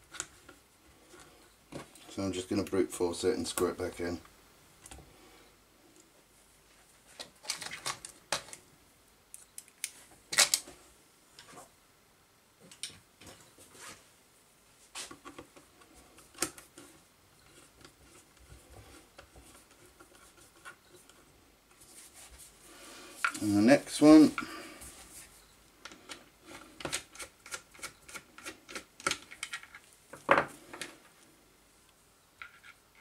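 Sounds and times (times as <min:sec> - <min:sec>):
small clicks taps and scrapes: 0:15.0 - 0:21.8, 0:25.8 - 0:31.2, 0:32.4 - 0:33.0.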